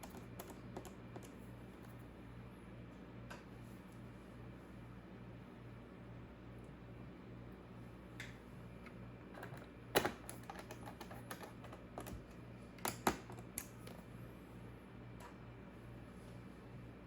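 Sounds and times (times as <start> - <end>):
laptop keyboard typing: 0.0 - 1.4
faint steady hum: 0.0 - 17.0.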